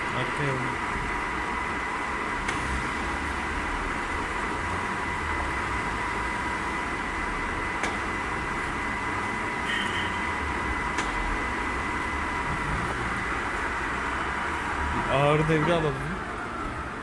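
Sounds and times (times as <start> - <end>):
lathe gearbox whine: 0.0 - 17.0.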